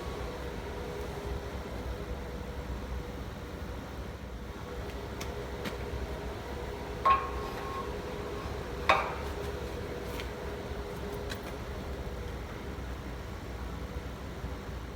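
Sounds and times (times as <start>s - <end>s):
steady low hum: 0.0s - 13.2s
sharp metallic clanks: 7.0s - 10.2s.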